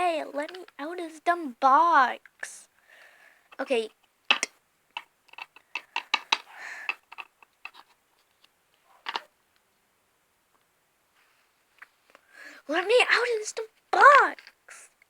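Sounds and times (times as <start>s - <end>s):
plastic toys clicking and tapping: 0.4s - 0.8s, 3.5s - 7.9s, 9.0s - 9.3s, 14.0s - 14.6s.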